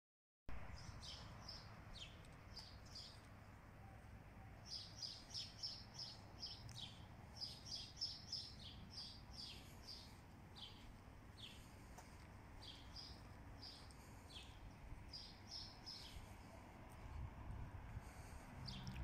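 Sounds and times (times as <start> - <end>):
small birds chirping: 0.6 - 17.2, 17.8 - 19.0.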